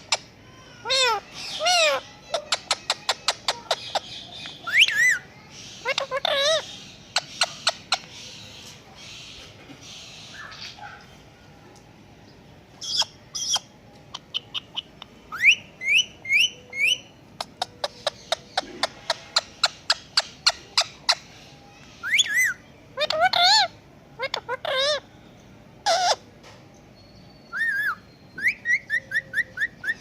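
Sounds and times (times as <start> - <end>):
parrot calling: 0.0 - 11.1, 12.8 - 25.1, 25.8 - 26.3
parrot rising whistles: 27.4 - 30.0.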